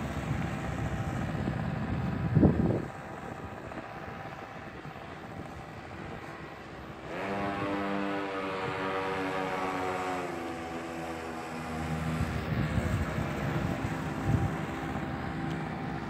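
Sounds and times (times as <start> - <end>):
small motorbike engine revving: 5.1 - 16.0.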